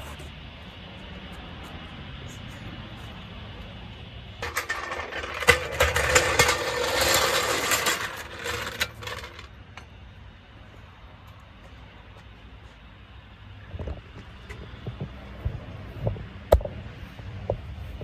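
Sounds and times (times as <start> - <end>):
clattering and scraping: 4.4 - 9.5.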